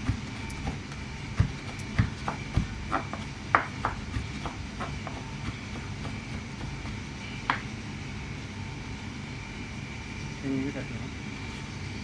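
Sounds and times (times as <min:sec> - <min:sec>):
knife chopping on cutting board: 0:00.0 - 0:07.7
steady background hum: 0:00.0 - 0:12.0.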